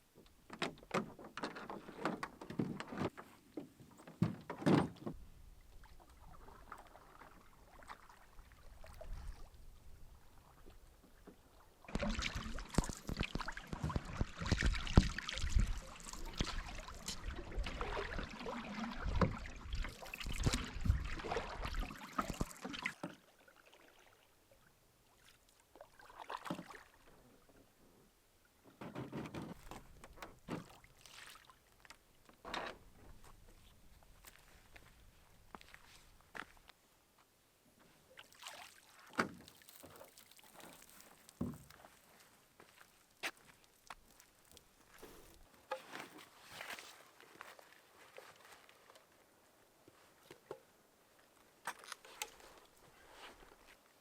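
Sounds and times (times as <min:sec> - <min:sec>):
water noise: 0:05.5 - 0:27.8, 0:38.1 - 0:46.7.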